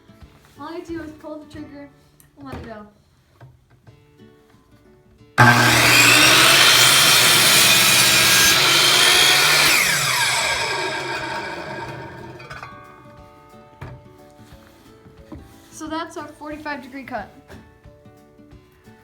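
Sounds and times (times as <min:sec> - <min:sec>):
miter saw cutting board: 0:05.4 - 0:12.8
saw motor winding down: 0:05.4 - 0:12.8.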